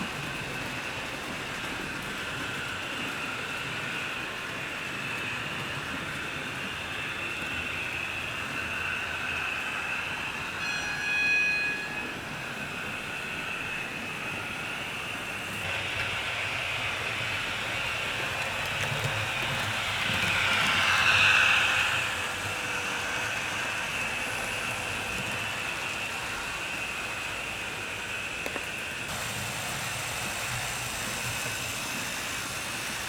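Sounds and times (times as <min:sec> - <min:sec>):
wheel noise on track: 0:00.0 - 0:11.2, 0:12.0 - 0:33.0
model train motor whine: 0:12.6 - 0:33.0.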